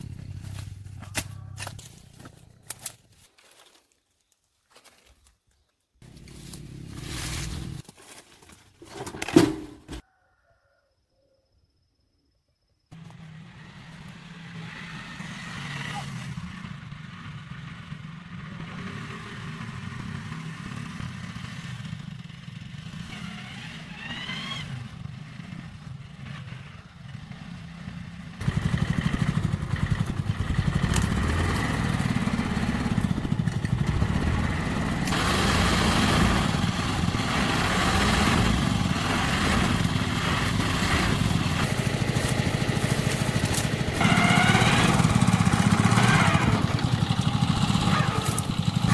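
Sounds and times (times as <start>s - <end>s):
small engine running: 12.9s - 48.9s.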